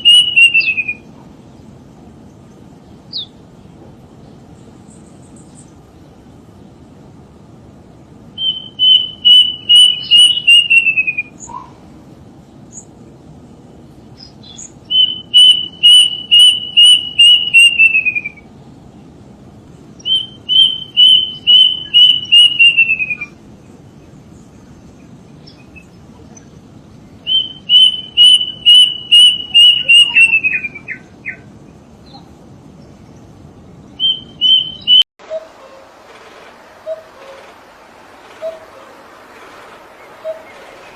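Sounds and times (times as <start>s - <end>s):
bird calling rapid notes: 0.0s - 1.1s, 8.4s - 11.8s, 14.5s - 18.4s, 20.0s - 23.4s, 27.3s - 31.4s, 38.3s - 39.0s, 40.1s - 40.9s.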